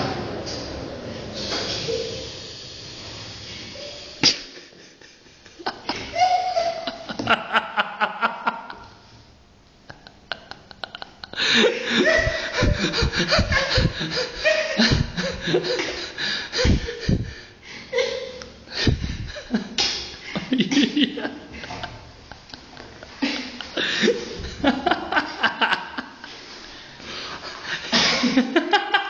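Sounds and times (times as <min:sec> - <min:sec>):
laughter: 0:04.2 - 0:09.0, 0:09.9 - 0:17.2, 0:17.9 - 0:26.4, 0:27.3 - 0:29.0.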